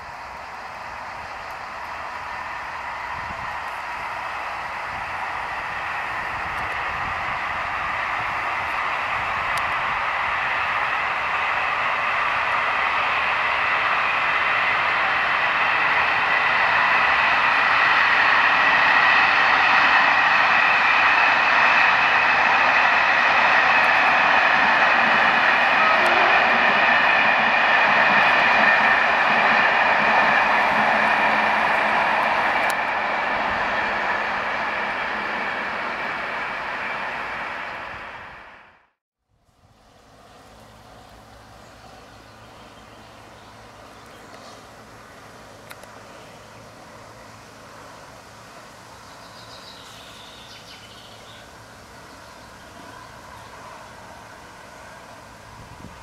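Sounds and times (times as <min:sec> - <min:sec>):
passenger train rolling past: 0:00.0 - 0:56.0.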